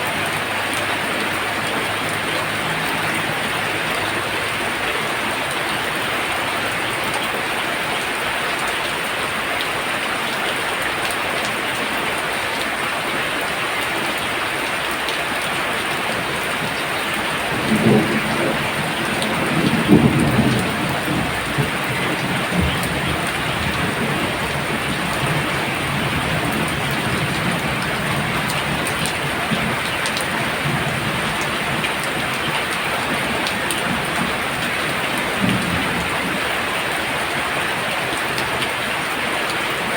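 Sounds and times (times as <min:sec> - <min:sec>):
heavy rain pouring: 0:00.0 - 0:39.9
thunder rumbling: 0:16.2 - 0:38.6.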